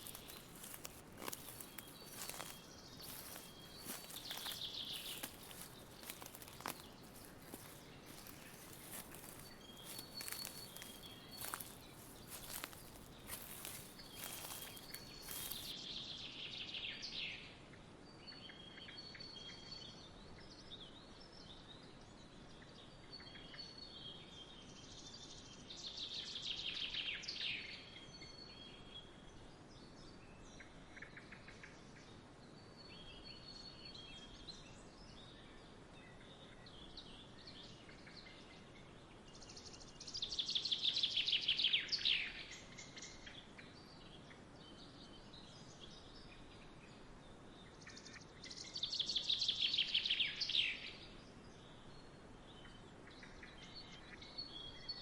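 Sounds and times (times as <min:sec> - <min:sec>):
songbirds chirping: 0:00.0 - 0:15.8.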